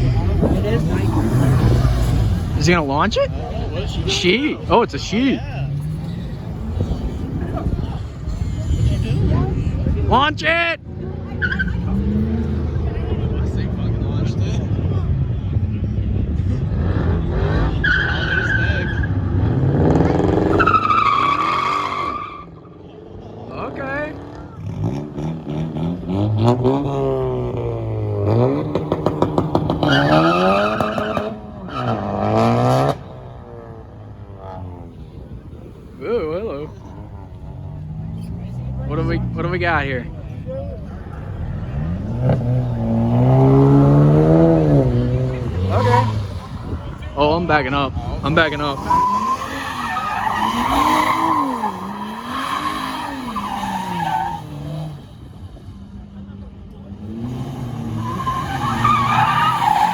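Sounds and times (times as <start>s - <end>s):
car engine revving hard: 23.9s - 35.4s, 36.9s - 55.6s, 56.9s - 59.9s
tyres squealing: 28.3s - 32.9s, 45.1s - 47.0s, 48.2s - 55.0s, 57.2s - 59.9s.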